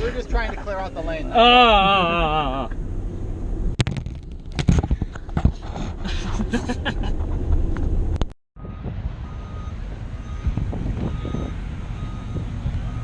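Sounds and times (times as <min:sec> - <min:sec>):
low vehicle rumble: 0:00.0 - 0:13.0
reversing alarm beeping: 0:08.6 - 0:13.0
wind on microphone: 0:10.3 - 0:13.0.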